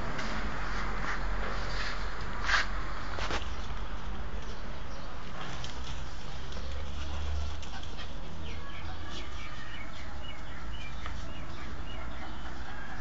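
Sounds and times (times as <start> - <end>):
birds chirping: 3.1 - 13.0.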